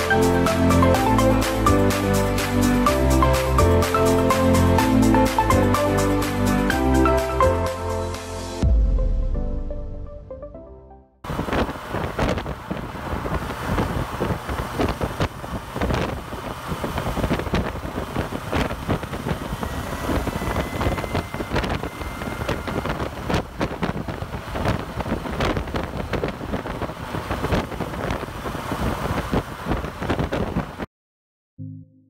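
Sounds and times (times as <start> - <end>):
tyres on road: 0.0 - 8.6, 11.2 - 30.9
motorcycle engine: 11.3 - 28.4
wind buffeting microphone: 11.3 - 30.9.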